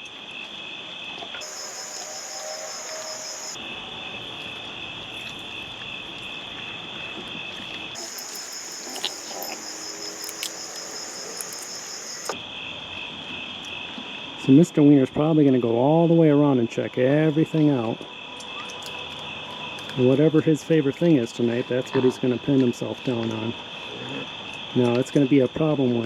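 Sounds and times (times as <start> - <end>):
crickets trilling: 0.1 - 15.0.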